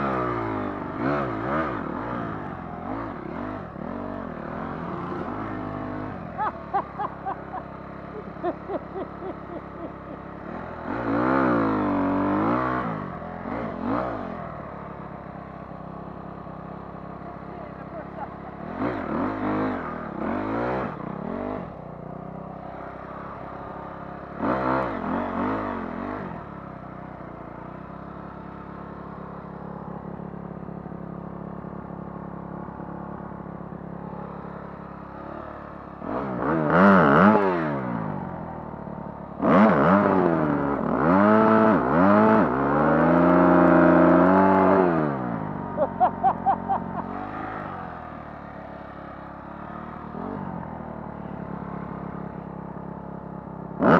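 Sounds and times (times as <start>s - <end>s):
dirt bike engine revving: 0.0s - 14.6s, 17.4s - 21.8s, 22.8s - 26.5s, 34.0s - 38.3s, 39.4s - 52.8s.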